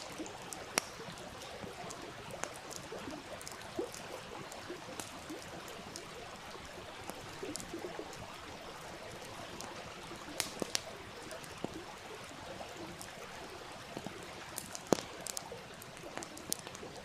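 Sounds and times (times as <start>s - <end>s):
fire pops: 0.0s - 8.3s, 9.2s - 12.0s, 13.8s - 17.0s
campfire crackling: 0.0s - 17.0s.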